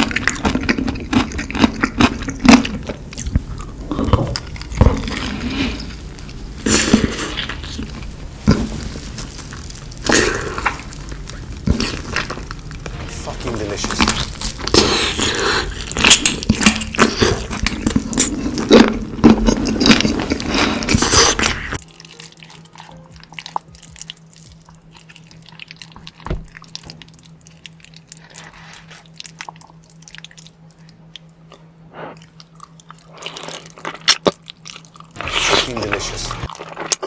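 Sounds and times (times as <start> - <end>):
crunching and chewing: 0.0 - 13.0, 13.6 - 37.0
steady low hum: 0.0 - 36.9.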